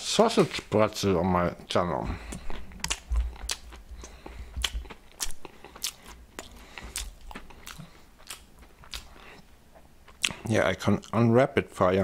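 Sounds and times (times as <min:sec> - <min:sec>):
person chewing crunchy snack: 0:02.2 - 0:11.2.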